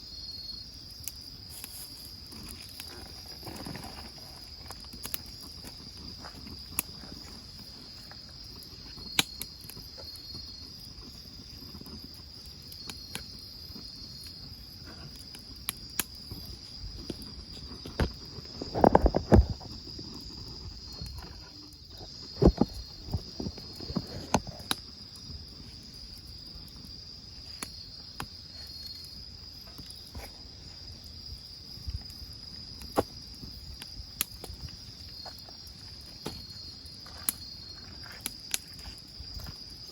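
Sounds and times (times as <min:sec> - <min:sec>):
crickets chirring: 0:00.0 - 0:39.9
wood fire popping and crackling: 0:00.2 - 0:39.9.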